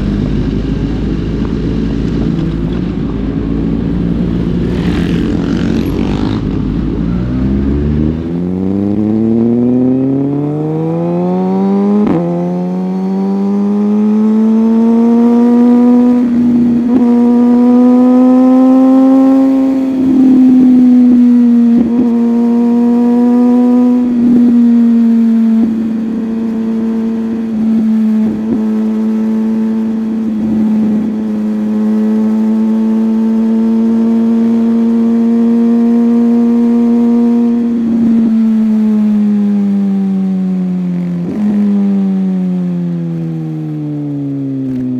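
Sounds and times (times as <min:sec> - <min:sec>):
low wind rumble: 0:00.0 - 0:10.4
superbike engine accelerating: 0:02.2 - 0:43.0.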